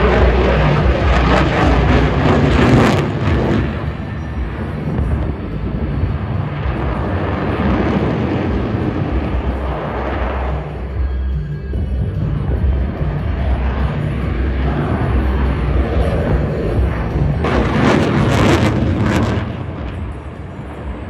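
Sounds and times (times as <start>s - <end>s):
jet engines roaring past: 0.0s - 21.0s.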